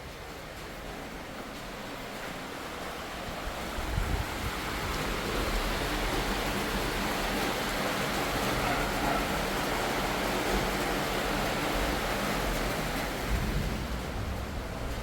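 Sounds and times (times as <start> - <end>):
strong wind gusts: 2.2 - 15.0
wind buffeting microphone: 3.2 - 7.1.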